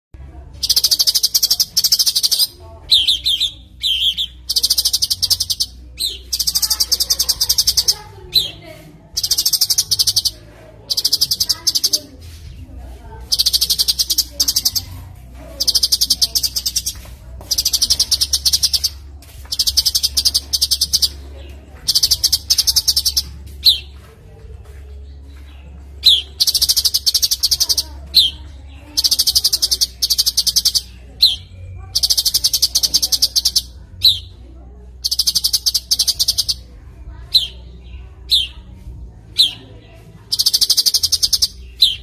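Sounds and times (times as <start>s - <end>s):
songbird buzzy trills: 0.3s - 24.0s, 25.0s - 34.4s, 35.0s - 42.0s
bird whistled notes: 0.6s - 8.6s, 9.2s - 12.5s, 13.2s - 15.0s, 15.6s - 21.2s, 21.9s - 23.9s, 26.0s - 28.4s, 29.0s - 34.3s, 35.0s - 36.7s, 40.3s - 42.0s.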